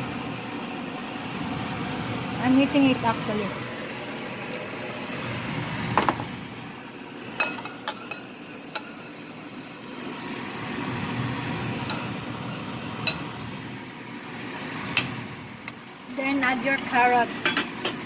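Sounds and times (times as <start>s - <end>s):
utensil clinking against cookware: 7.4s - 9.0s, 16.8s - 18.0s.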